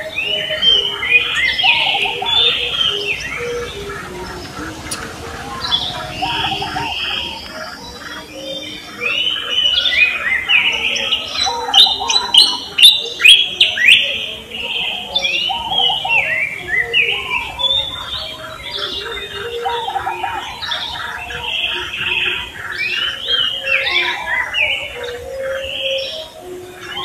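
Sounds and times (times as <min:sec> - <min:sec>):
birds chirping in chorus: 0:00.0 - 0:27.0
sharp falling bird calls: 0:00.0 - 0:27.0.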